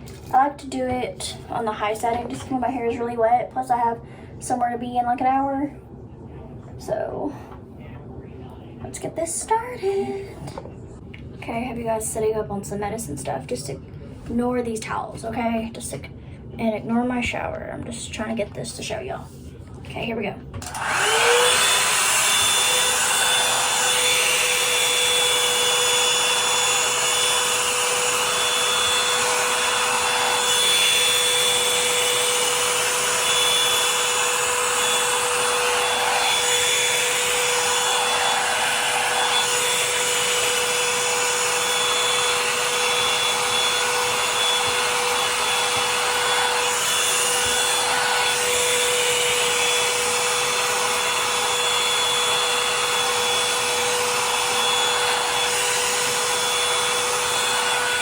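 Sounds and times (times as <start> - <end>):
hot-air brush running: 20.6 - 58.0.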